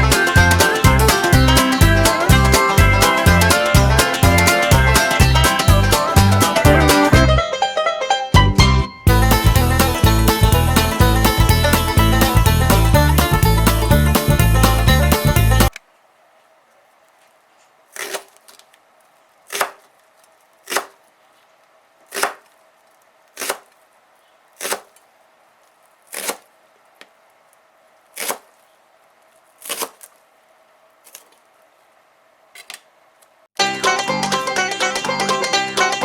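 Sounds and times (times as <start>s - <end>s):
knife chopping on cutting board: 22.1s - 22.4s.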